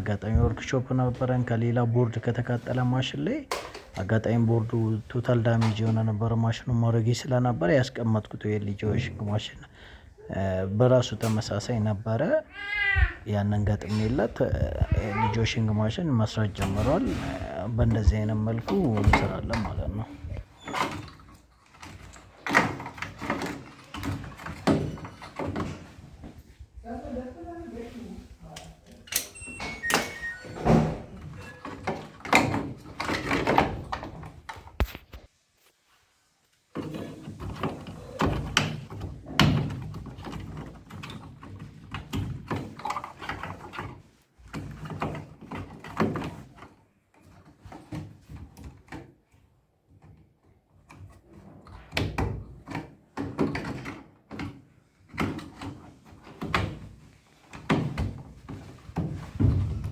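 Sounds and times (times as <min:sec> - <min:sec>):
washing machine thudding: 0:57.6 - 0:59.9.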